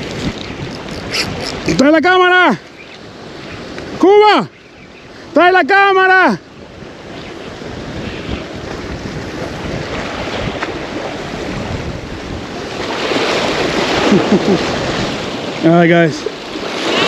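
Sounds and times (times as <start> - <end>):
wind buffeting microphone: 0.0 - 4.0, 6.4 - 17.0
surf washing: 0.0 - 17.0.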